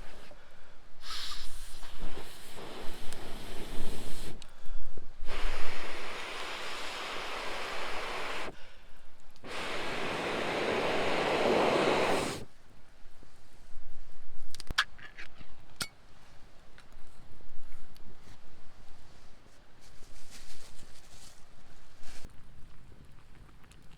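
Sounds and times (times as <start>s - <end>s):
breath-like blowing: 1.0s - 8.8s, 9.4s - 12.5s.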